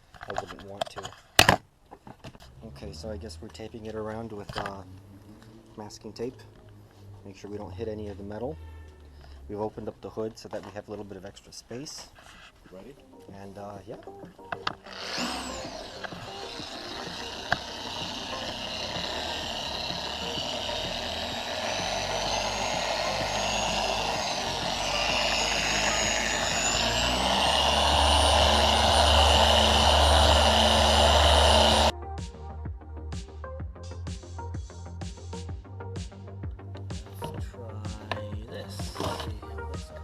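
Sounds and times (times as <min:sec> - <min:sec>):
electric polishing machine whining: 0:14.1 - 0:31.9, 0:38.8 - 0:39.4.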